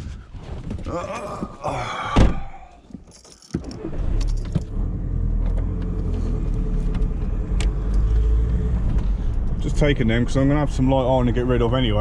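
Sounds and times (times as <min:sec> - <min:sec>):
car engine starting and running: 0:03.6 - 0:12.0.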